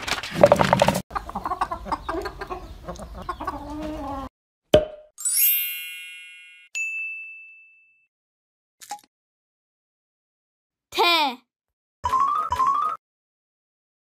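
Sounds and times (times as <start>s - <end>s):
cartoon hens cackling and clucking: 1.1s - 4.3s.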